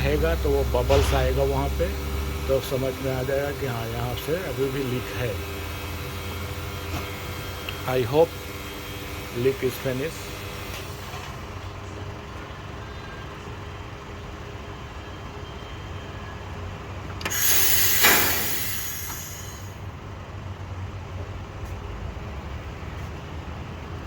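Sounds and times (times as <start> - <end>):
low machine hum: 0.0 - 15.0, 17.3 - 20.0
pressurised air hissing: 17.2 - 19.8.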